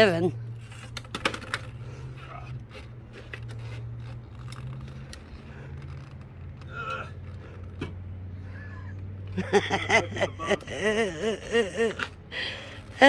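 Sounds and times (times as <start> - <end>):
low motor hum: 0.0 - 13.0.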